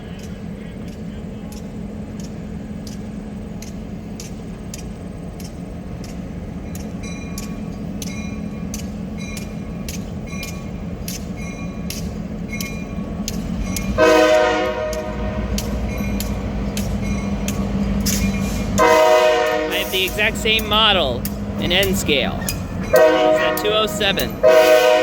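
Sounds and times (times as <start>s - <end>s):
diesel locomotive engine hum: 0.0s - 25.0s
wheels clicking on rails: 0.0s - 25.0s
train horn blast: 13.9s - 15.8s, 18.7s - 21.9s, 22.8s - 25.0s.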